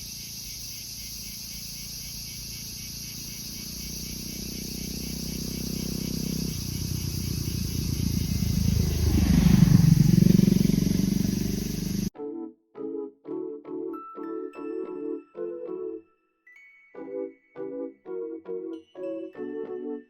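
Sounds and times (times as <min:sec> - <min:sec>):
crickets chirping: 0:00.0 - 0:12.1
motor vehicle passing: 0:02.4 - 0:12.1.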